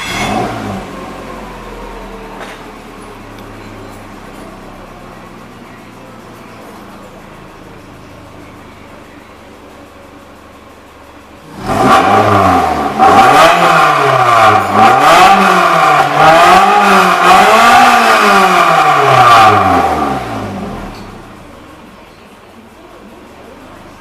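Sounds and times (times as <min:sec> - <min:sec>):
engine revving up and down: 0:00.0 - 0:02.6, 0:11.4 - 0:21.4.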